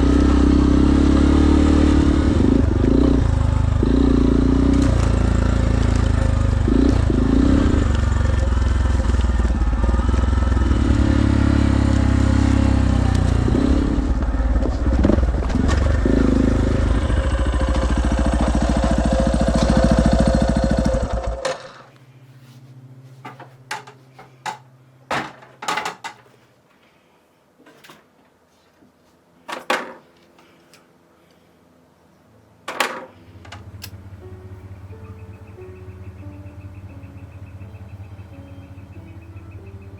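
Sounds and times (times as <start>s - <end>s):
dirt bike engine running: 0.0s - 21.9s, 33.4s - 39.9s.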